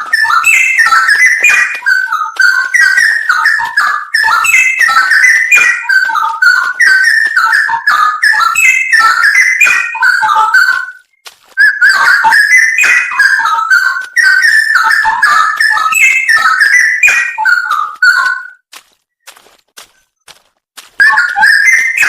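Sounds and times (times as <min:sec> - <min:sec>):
bird singing whistled phrases: 0:00.0 - 0:18.6, 0:21.0 - 0:22.0.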